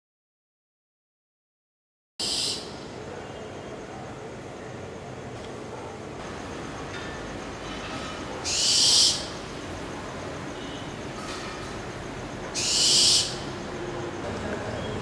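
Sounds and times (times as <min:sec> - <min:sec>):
owl hissing screech: 0:02.2 - 0:02.7, 0:08.4 - 0:09.3, 0:12.6 - 0:13.4.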